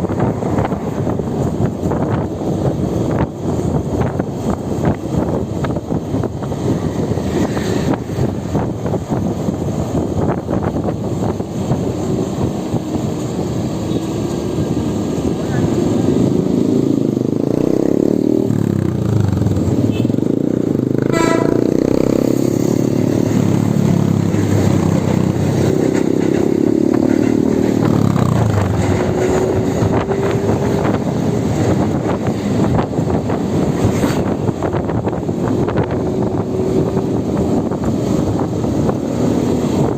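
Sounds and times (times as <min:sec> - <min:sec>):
road vehicle noise: 0:00.0 - 0:39.9
horn-like tone: 0:21.1 - 0:21.8.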